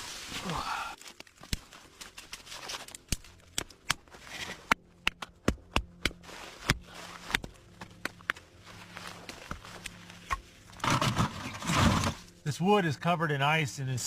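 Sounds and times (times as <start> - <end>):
firewood knocking and clicking: 1.2 - 8.4.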